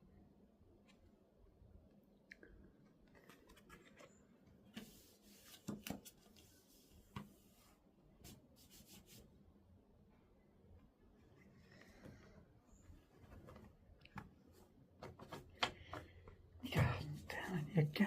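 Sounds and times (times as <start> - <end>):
faint rustling and rubbing: 3.0 - 9.4, 11.1 - 18.0.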